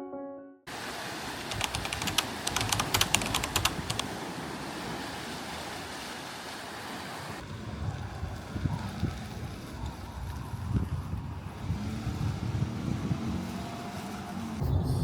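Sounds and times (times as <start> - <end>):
steady rushing noise: 0.8 - 4.1
sharp clicks: 1.5 - 4.1.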